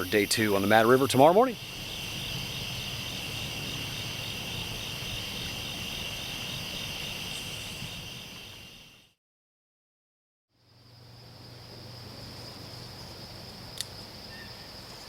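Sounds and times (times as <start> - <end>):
crickets chirping: 0.0 - 9.2, 10.5 - 15.0.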